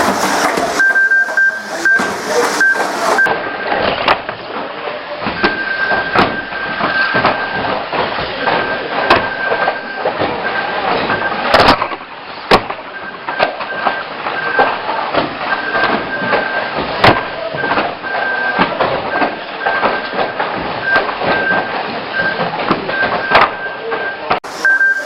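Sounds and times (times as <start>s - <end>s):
high steady tone: 0.0s - 3.3s, 20.8s - 25.0s
cars colliding knocks: 0.0s - 24.6s
race car engines din: 0.0s - 25.0s.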